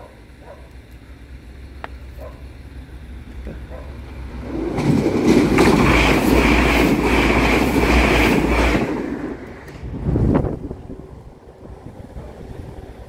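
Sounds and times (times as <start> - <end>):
rush of noise: 3.1 - 13.0
train wheels clattering: 3.3 - 9.9.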